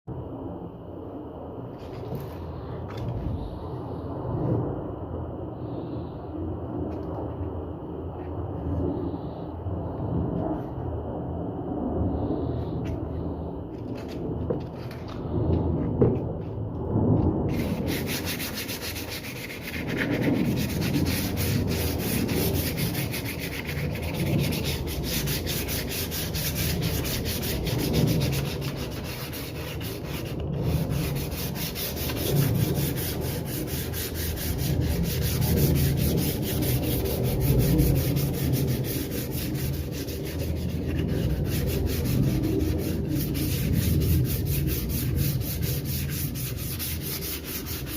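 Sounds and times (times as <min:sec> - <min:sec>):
sandpaper scratchy rubbing: 0:17.5 - 0:47.9.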